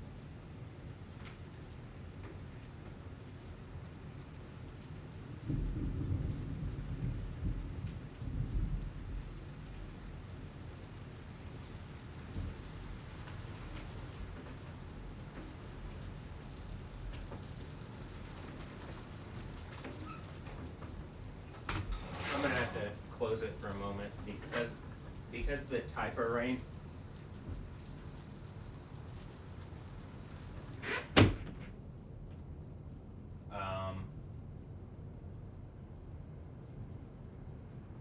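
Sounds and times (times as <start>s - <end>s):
steady rain pattering: 0.0s - 31.2s
low rumble of thunder: 2.4s - 21.7s, 22.9s - 35.2s.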